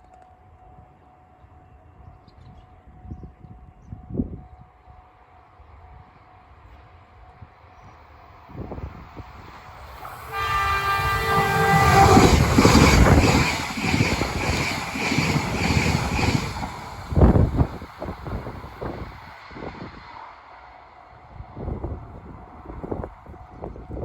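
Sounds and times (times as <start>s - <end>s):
train horn: 10.0s - 13.4s.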